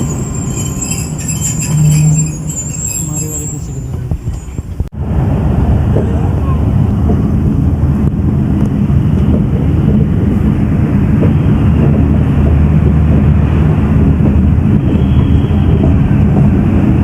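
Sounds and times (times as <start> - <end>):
train rumbling on track: 0.0 - 17.0
wind on microphone: 3.8 - 17.0.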